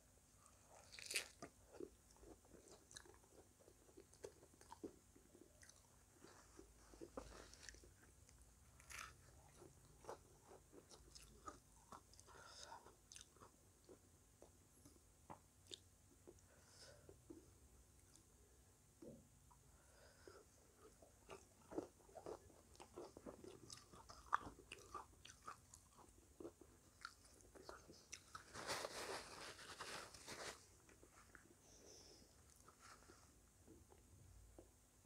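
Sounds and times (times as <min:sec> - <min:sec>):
person crunching snack: 0:00.7 - 0:03.2.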